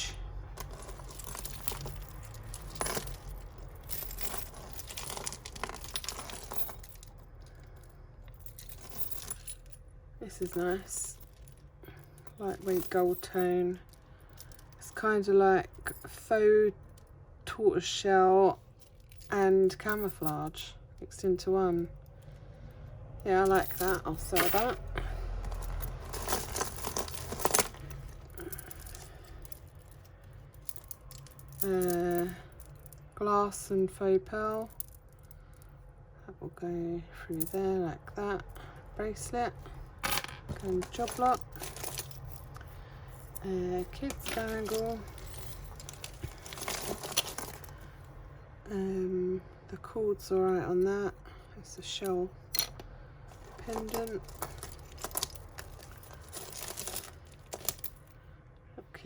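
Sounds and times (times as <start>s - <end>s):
jewellery beads clinking: 0.3s - 17.0s, 23.2s - 33.6s, 34.4s - 35.7s, 39.2s - 47.9s, 52.0s - 58.1s
beads and metal pieces clicking: 52.5s - 58.1s.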